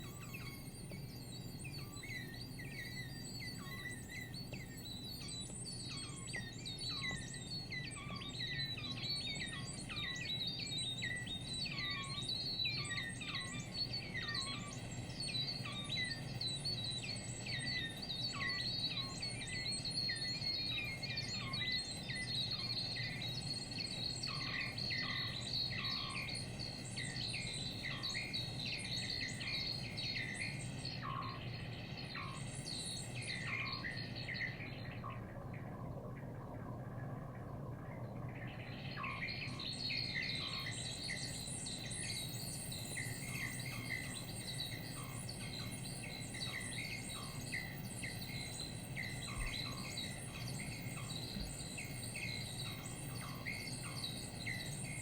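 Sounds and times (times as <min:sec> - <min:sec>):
synthesizer bird-like chirps: 0:00.0 - 0:55.0
low synthesizer drone: 0:34.6 - 0:39.6.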